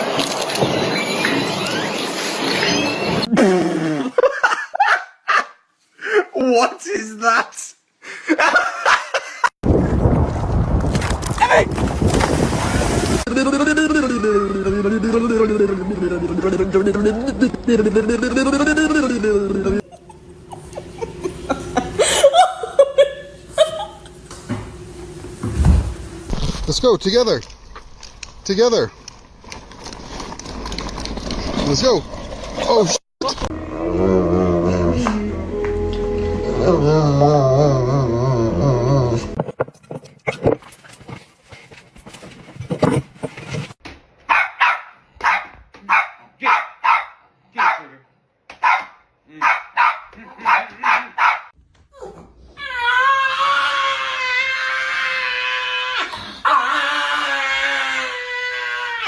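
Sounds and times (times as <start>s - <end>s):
person laughing: 3.3s - 6.4s, 8.1s - 9.5s, 13.3s - 24.2s
small dog yapping: 44.3s - 47.8s, 48.6s - 51.5s.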